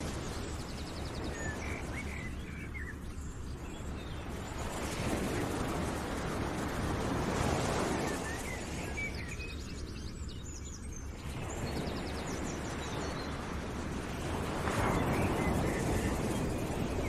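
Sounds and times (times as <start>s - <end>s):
steady rushing noise: 0.0s - 9.9s
birds chirping in trills: 0.5s - 4.8s.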